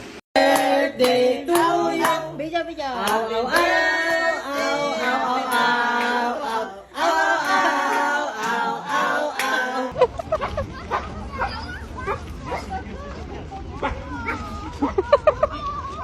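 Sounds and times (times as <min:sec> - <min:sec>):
voices singing: 0:00.4 - 0:10.0.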